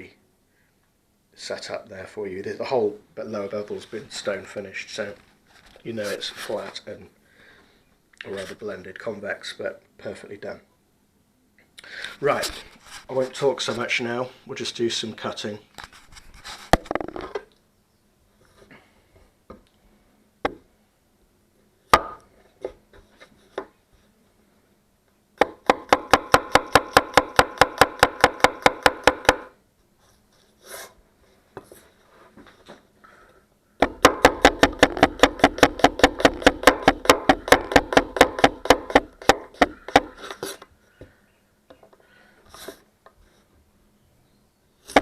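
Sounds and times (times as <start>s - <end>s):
knife chopping on cutting board: 33.8s - 40.2s.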